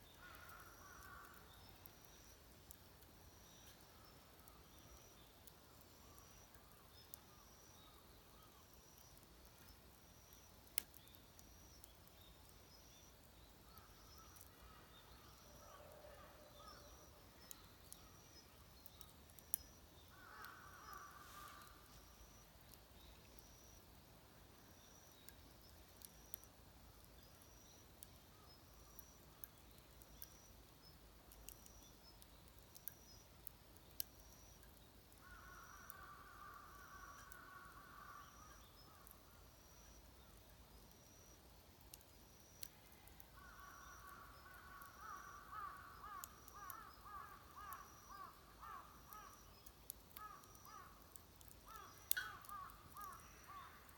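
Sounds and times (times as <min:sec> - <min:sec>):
faint clicks: 0:00.1 - 0:15.7, 0:16.6 - 0:23.7, 0:25.0 - 0:39.2, 0:39.8 - 0:53.9
crows cawing: 0:00.2 - 0:01.4, 0:20.1 - 0:21.8, 0:35.2 - 0:38.5, 0:43.4 - 0:49.4, 0:51.7 - 0:53.9.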